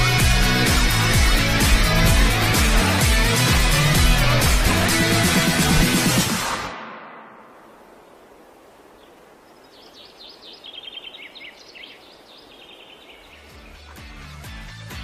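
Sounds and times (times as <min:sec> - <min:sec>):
birds chirping and singing: 0:00.0 - 0:06.2, 0:07.8 - 0:14.2
music with bass line and beat: 0:00.0 - 0:06.7, 0:13.6 - 0:15.0
faint outdoor hiss: 0:06.2 - 0:14.0.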